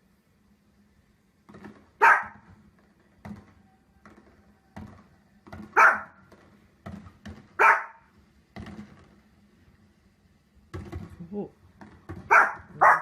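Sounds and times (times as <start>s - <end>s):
dog barking: 2.0s - 2.4s, 5.7s - 6.2s, 7.6s - 8.1s, 12.2s - 13.0s.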